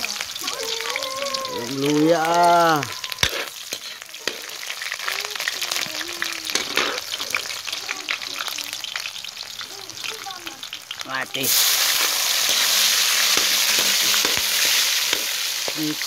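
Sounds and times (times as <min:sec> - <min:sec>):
aromatics frying in hot oil: 0:00.0 - 0:16.0
metal spatula scraping pan: 0:03.1 - 0:05.0, 0:06.5 - 0:07.8, 0:11.5 - 0:16.0.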